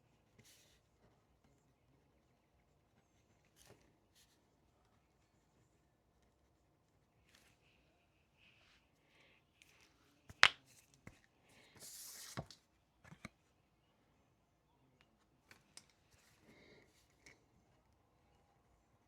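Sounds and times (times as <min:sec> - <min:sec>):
paper rustle: 0:10.7 - 0:13.3.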